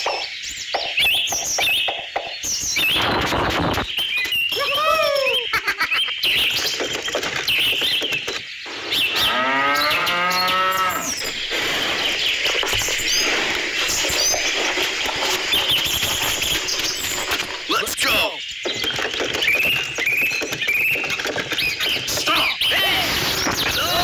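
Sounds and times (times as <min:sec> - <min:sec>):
cow mooing: 0:09.2 - 0:11.2.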